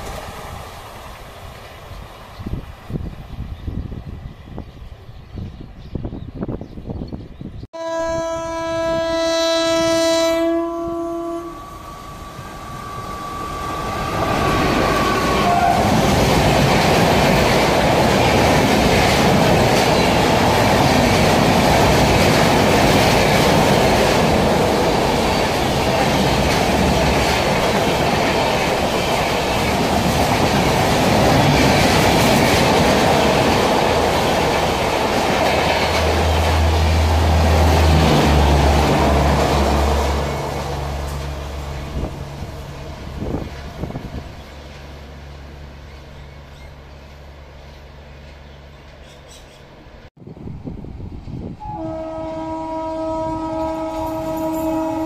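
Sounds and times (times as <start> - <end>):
train wheels rushing on rails: 0.0 - 5.1, 9.8 - 55.0
train horn: 7.8 - 16.3, 51.6 - 55.0.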